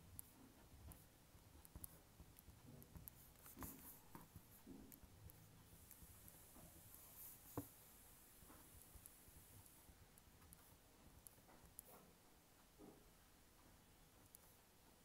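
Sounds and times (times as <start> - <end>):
pen scratching on paper: 0.9 - 7.8
pen tapping: 7.4 - 7.8.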